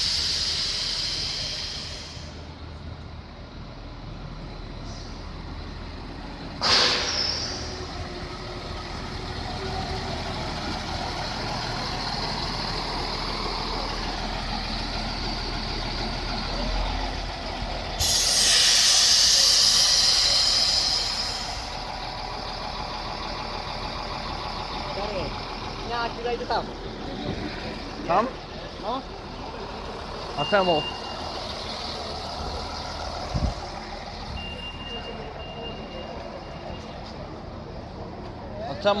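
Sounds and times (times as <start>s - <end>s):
compressed air hiss: 0.0s - 2.4s, 18.0s - 21.7s
passenger train rumbling past: 0.0s - 39.0s.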